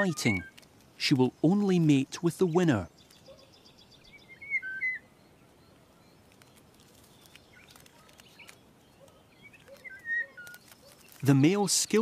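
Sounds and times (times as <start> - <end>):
low background hiss: 0.0 - 7.6
faint bird chirps: 0.0 - 11.4.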